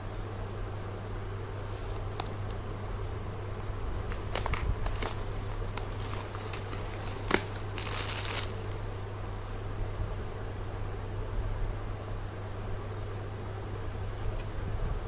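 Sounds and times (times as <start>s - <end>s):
steady low hum: 0.0s - 15.0s
packaging crinkling: 4.1s - 9.3s.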